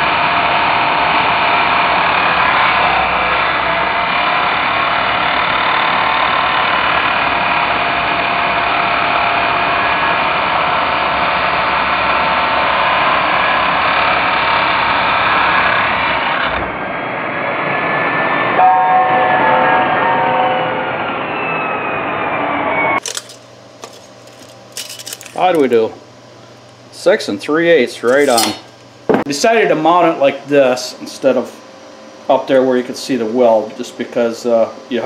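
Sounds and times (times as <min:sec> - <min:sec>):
power tool cutting steel bar: 0:23.0 - 0:25.8, 0:28.0 - 0:28.9.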